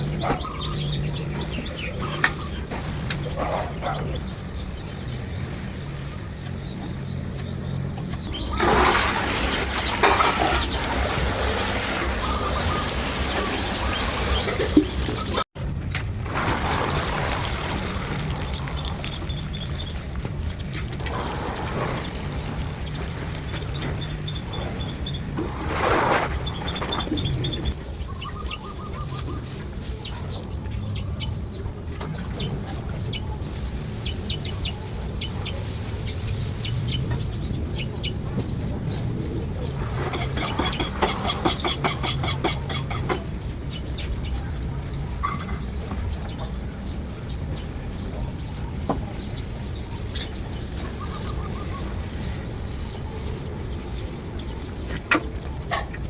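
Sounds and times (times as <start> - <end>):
small birds chirping: 0.0 - 8.6, 9.7 - 15.4, 26.3 - 56.0
running water splashing: 8.5 - 15.4, 16.4 - 19.5, 40.1 - 43.1
chickens clucking: 9.6 - 15.4, 39.7 - 43.3
short rapid bird trill: 40.1 - 43.1.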